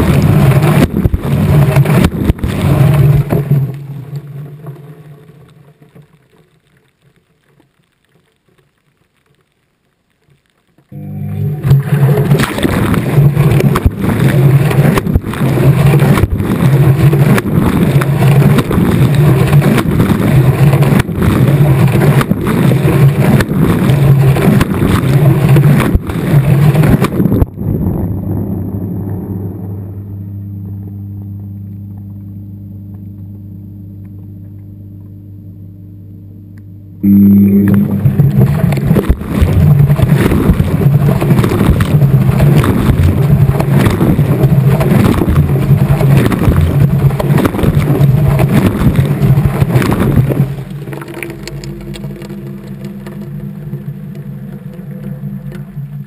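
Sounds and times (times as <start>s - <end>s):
washing machine hum: 0.0s - 4.1s, 11.0s - 28.3s, 29.7s - 56.0s
water and clothes churning: 0.0s - 5.8s, 11.6s - 27.6s, 37.6s - 56.0s.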